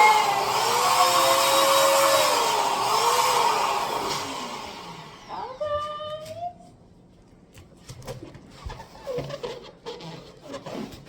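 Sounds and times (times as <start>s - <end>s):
electric balloon inflator whining: 0.0s - 5.8s.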